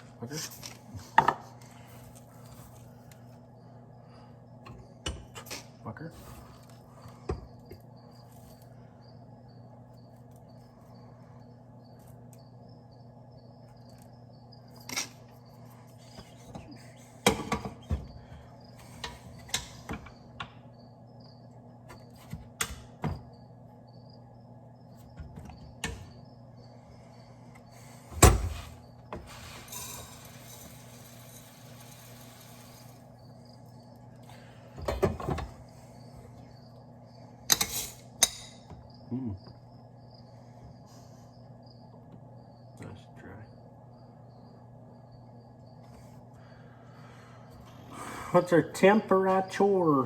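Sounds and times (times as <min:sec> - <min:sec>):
low machine hum: 0:00.0 - 0:50.0
sharp knocks and clattering: 0:16.1 - 0:20.7.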